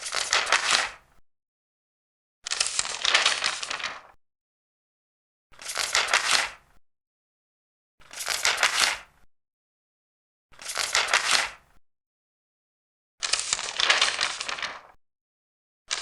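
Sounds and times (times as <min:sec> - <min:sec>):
paper pages turning: 0:00.0 - 0:01.0, 0:02.5 - 0:04.2, 0:05.6 - 0:06.6, 0:08.0 - 0:09.1, 0:10.6 - 0:11.6, 0:13.2 - 0:15.0.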